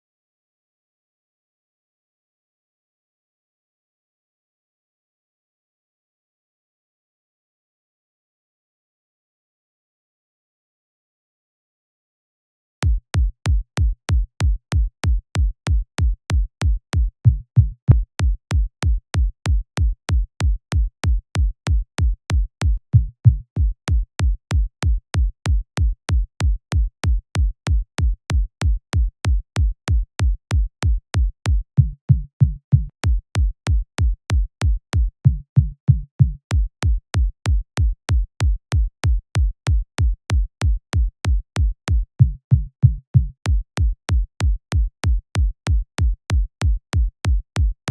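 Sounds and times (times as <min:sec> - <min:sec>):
electronic kick drum: 0:12.8 - 0:47.9.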